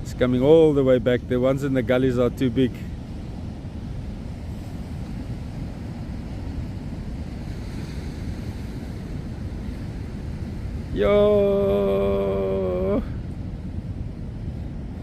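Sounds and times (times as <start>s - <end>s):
wind buffeting microphone: 0.0s - 15.0s
surf breaking: 10.8s - 13.3s.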